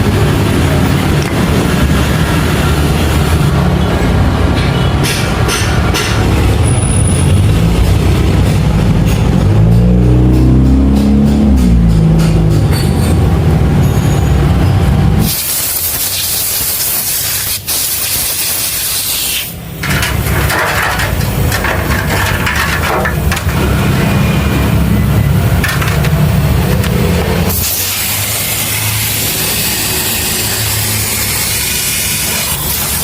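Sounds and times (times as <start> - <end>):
loud hissing spray: 15.2 - 20.2, 27.3 - 33.0.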